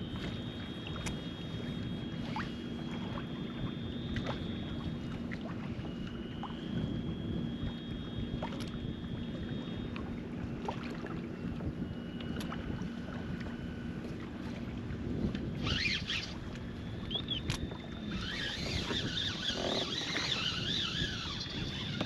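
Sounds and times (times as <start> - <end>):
low hum: 0.0 - 22.0
water noise: 0.0 - 22.0
wind: 0.0 - 22.0
bird chirps: 17.1 - 17.4.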